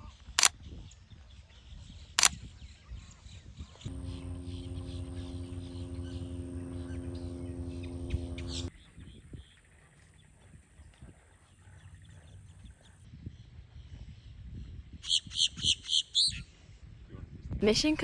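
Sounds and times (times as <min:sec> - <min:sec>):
low droning hum: 0:03.9 - 0:08.7.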